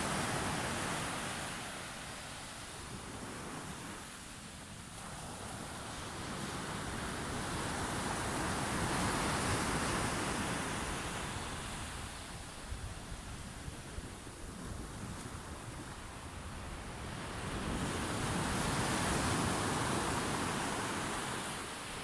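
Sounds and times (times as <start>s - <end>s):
low rumble of surf: 0.0s - 22.0s.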